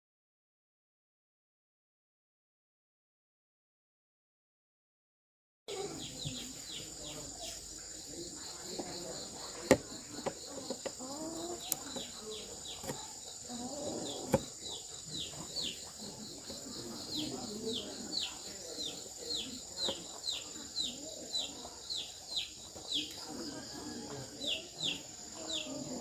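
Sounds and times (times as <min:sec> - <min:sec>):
chickens clucking: 0:05.7 - 0:26.0
high insect drone: 0:05.7 - 0:26.0.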